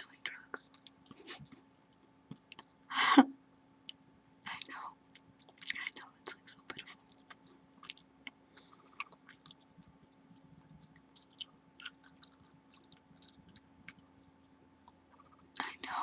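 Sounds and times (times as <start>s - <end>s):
gum chewing mouth smacks: 7.0s - 10.2s, 10.8s - 14.0s.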